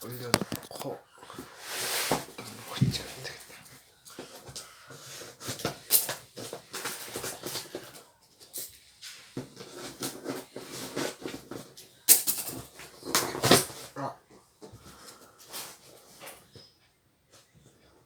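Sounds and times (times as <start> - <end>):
packaging rustling and crackling: 0.3 - 0.9.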